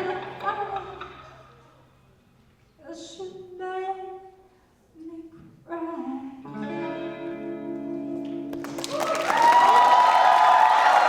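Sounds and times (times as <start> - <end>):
cheering and clapping: 8.5 - 11.0.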